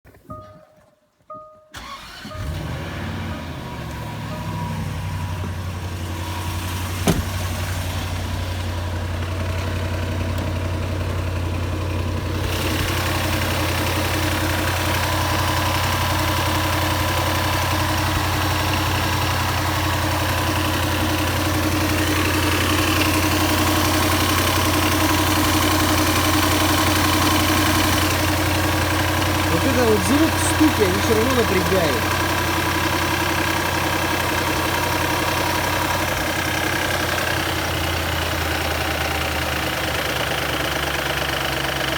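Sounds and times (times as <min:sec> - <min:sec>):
car engine idling: 0:01.8 - 0:41.9.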